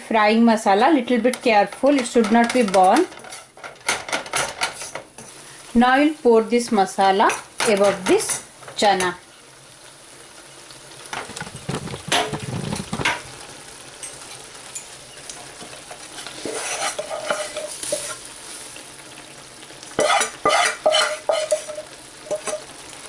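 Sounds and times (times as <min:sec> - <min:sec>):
spices sizzling in a pan: 0:00.0 - 0:23.0
metal spoon scraping a pan: 0:01.4 - 0:05.4, 0:15.5 - 0:18.3, 0:20.0 - 0:22.7.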